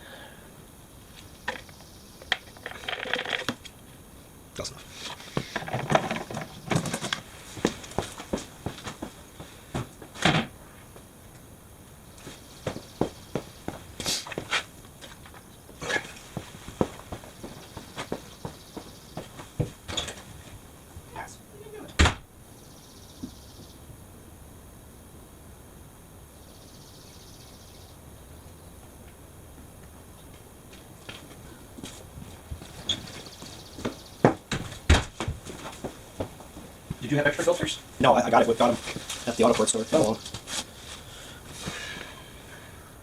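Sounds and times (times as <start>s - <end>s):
objects clicking and knocking: 1.5s - 3.7s.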